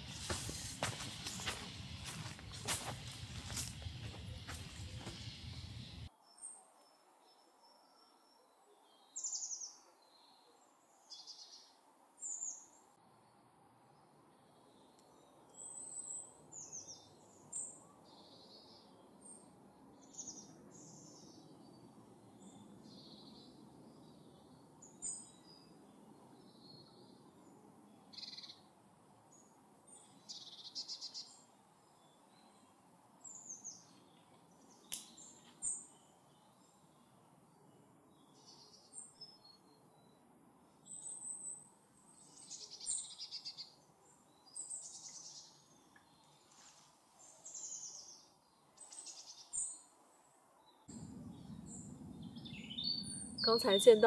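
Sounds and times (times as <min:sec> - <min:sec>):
birds chirping and trilling: 0:00.0 - 0:06.1, 0:50.6 - 0:54.0
faint low background noise: 0:00.0 - 0:54.0.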